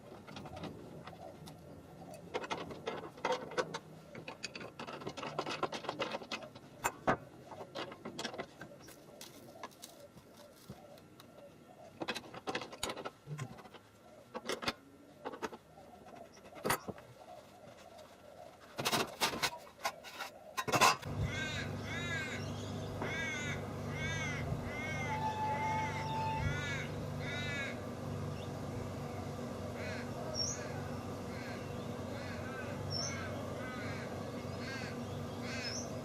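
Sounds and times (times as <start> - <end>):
sharp clicks and knocks: 0.0 - 10.3, 11.9 - 17.0
steady low hum: 0.0 - 36.0
bird cawing: 21.1 - 28.1, 29.7 - 36.0.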